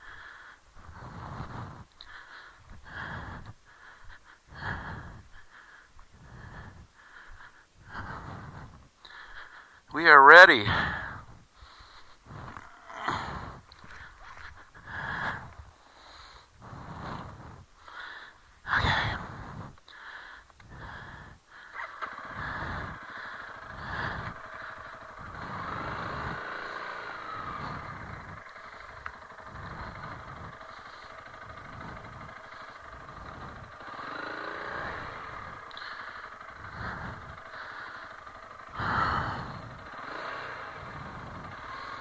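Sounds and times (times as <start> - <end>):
motorcycle engine revving: 12.3 - 14.0, 21.7 - 42.0.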